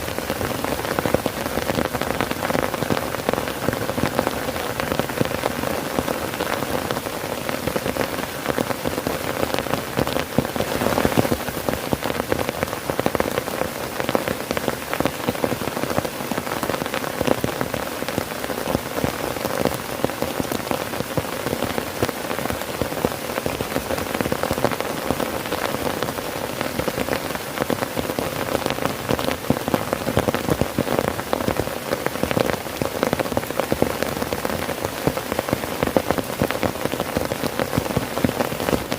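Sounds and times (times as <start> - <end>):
heavy rain on a tent: 0.0 - 38.9.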